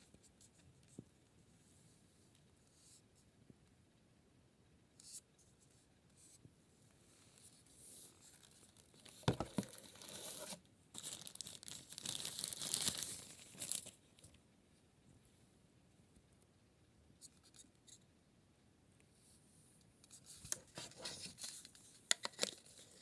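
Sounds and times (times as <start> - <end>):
crinkling and tearing: 8.3 - 14.0.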